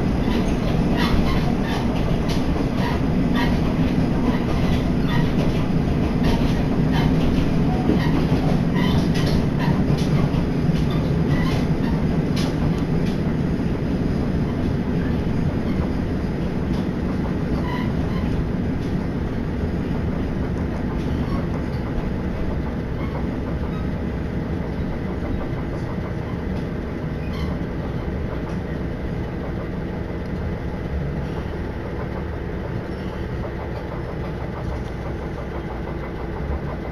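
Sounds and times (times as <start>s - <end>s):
railcar engine and wheels rumbling: 0.0s - 36.9s
faint rail clicks: 0.2s - 13.4s, 24.6s - 36.9s.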